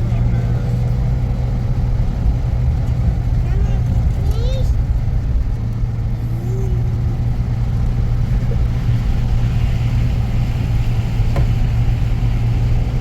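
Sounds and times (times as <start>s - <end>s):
motor vehicle running: 0.0s - 13.0s.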